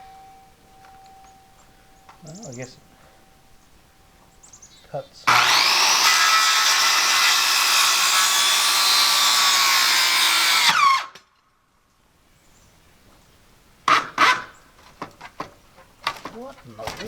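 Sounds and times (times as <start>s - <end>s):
electric saw motor winding down: 5.3s - 11.2s.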